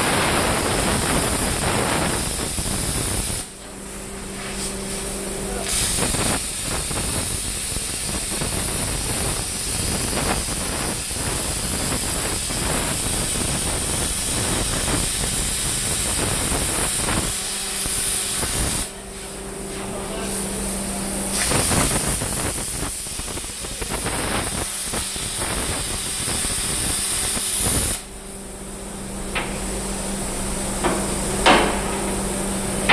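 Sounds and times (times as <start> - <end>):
plasma cutter torch hissing: 0.0 - 32.9
steady low hum: 27.8 - 32.9.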